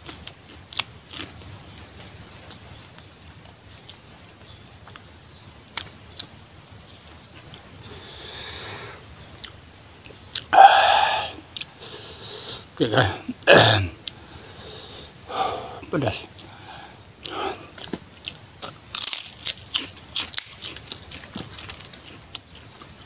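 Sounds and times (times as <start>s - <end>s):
faint chewing clicks: 0.0s - 1.6s, 9.2s - 10.5s, 16.3s - 23.0s
bird singing high chirps: 13.9s - 15.5s.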